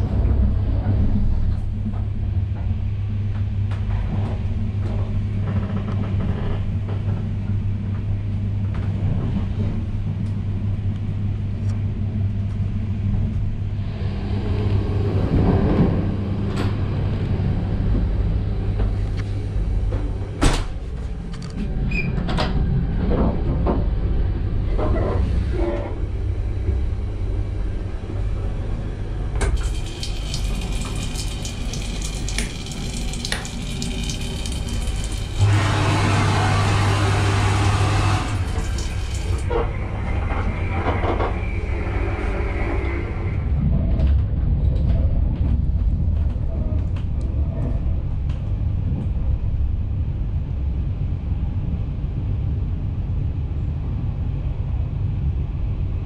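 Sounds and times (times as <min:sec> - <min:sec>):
train rumble inside coach: 0:00.0 - 0:33.2, 0:33.8 - 0:56.0
tap water running into basin: 0:29.5 - 0:39.5.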